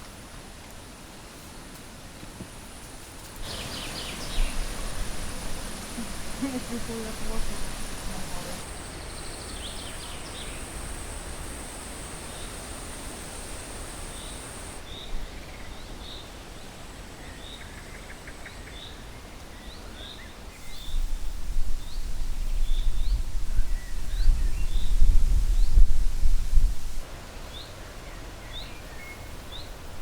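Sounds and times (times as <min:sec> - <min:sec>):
high steady buzz: 0:03.4 - 0:14.8
bird chirping: 0:03.4 - 0:15.7.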